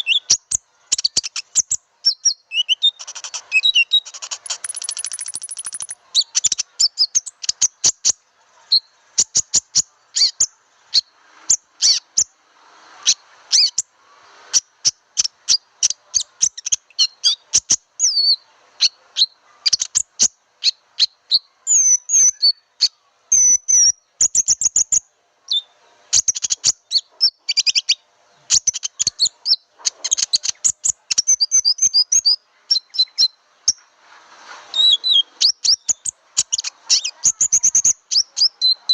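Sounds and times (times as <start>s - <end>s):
bird lure chirps and whistles: 2.1s - 7.5s.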